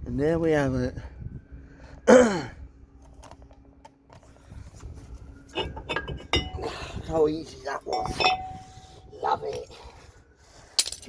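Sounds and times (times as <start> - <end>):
light metallic clinks and knocks: 5.5 - 6.8, 7.8 - 8.8.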